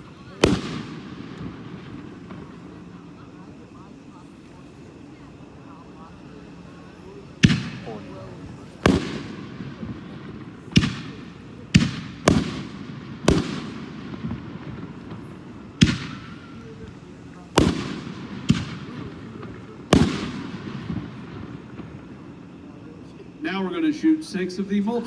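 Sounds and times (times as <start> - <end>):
firework shells booming: 0.0 - 3.8, 6.8 - 22.9.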